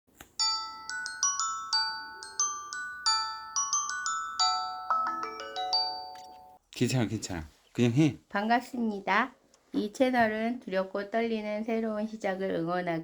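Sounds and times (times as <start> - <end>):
glockenspiel melody: 0.4 - 6.6.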